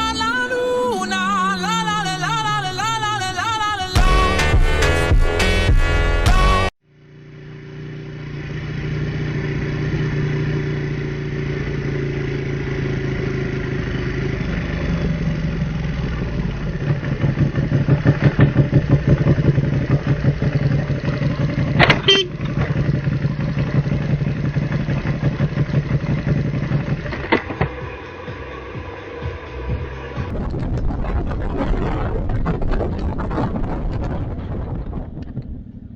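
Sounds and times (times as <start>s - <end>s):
motorcycle engine running: 0.0s - 31.4s
short horn blast: 22.0s - 22.5s.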